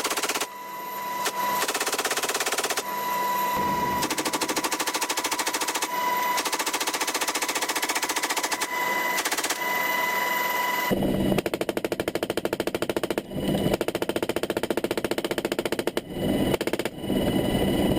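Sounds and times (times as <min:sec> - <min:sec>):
machine gun firing bursts: 0:00.0 - 0:00.5, 0:01.6 - 0:02.9, 0:03.6 - 0:09.6, 0:11.3 - 0:16.9.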